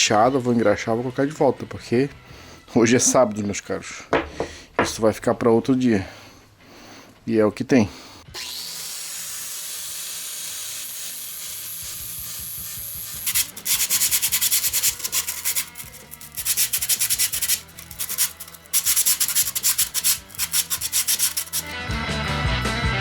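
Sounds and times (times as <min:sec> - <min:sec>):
sandpaper rubbing: 0:12.8 - 0:21.8.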